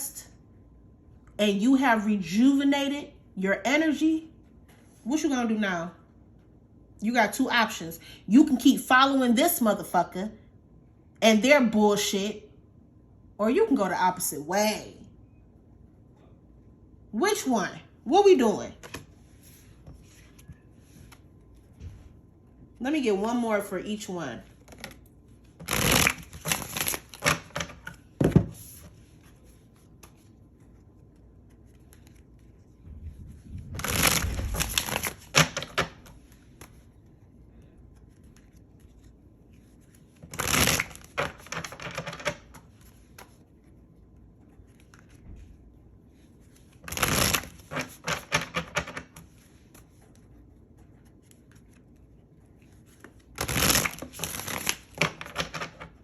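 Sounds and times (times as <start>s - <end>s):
cards being shuffled: 18.8s - 22.1s, 24.5s - 56.0s.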